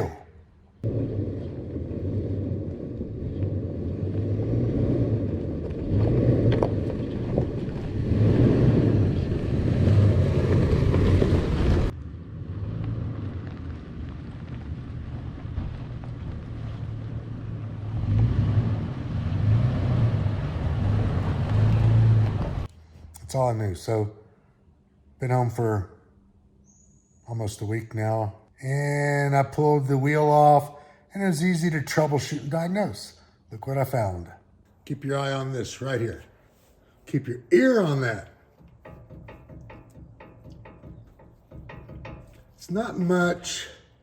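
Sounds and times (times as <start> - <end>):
low hum: 0.0 - 23.0, 35.6 - 44.0
road and wind rumble: 0.8 - 23.2, 38.0 - 44.0.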